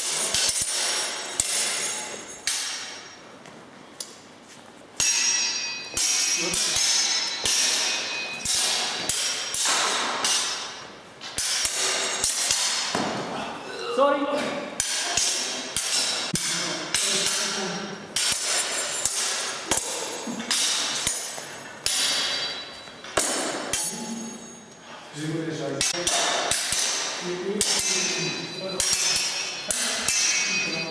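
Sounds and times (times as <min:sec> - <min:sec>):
sharp ringing knocks: 0:05.0 - 0:13.2, 0:14.8 - 0:24.7, 0:25.8 - 0:30.9.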